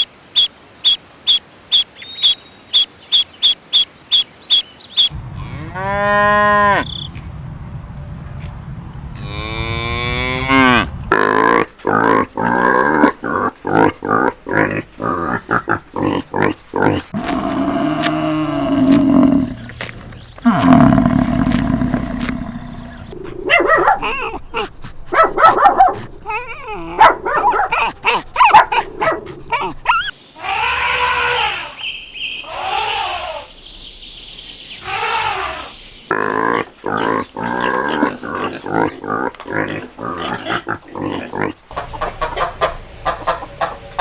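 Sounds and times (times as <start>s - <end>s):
farm animal grunts and calls: 9.2s - 31.8s, 34.8s - 44.0s.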